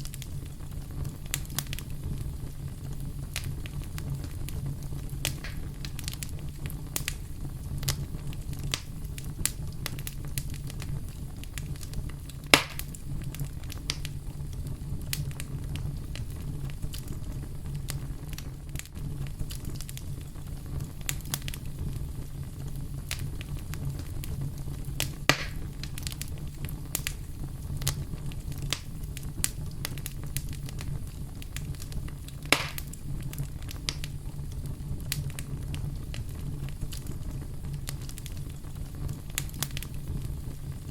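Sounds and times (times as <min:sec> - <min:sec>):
campfire crackling: 0:00.0 - 0:40.9
sharp cracks: 0:12.5 - 0:13.0, 0:25.3 - 0:25.7, 0:32.4 - 0:33.0.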